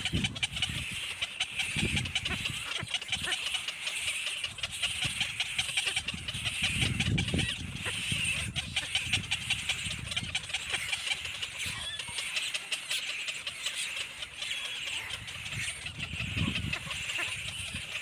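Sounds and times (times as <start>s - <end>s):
birds chattering: 0.0s - 18.0s.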